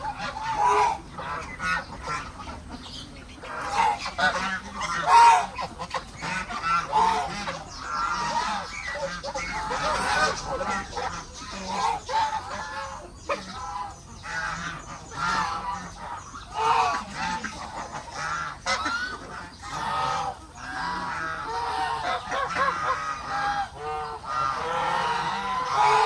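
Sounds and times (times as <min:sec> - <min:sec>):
geese honking: 0:00.0 - 0:26.0.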